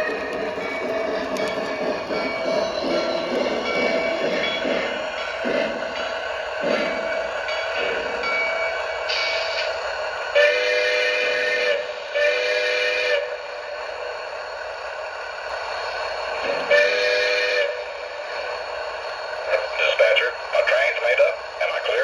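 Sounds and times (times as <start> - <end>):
model train running: 0.0 - 22.0
model train horn blasts: 10.4 - 13.4, 16.6 - 17.9.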